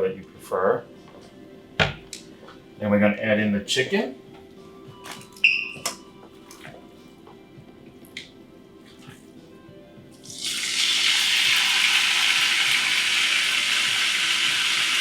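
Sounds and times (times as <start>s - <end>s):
chicken sizzling in hot oil: 10.2s - 15.0s.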